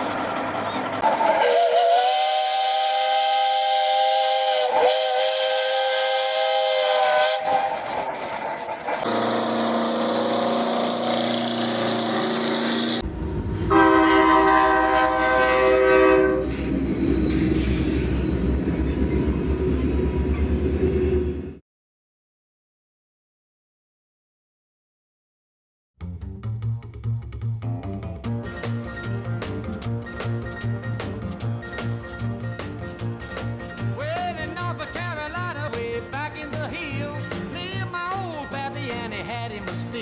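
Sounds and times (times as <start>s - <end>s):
diesel engine running: 0.0s - 1.4s, 8.0s - 13.6s
truck air horn blasts: 1.2s - 7.6s, 9.0s - 13.0s, 13.7s - 16.6s.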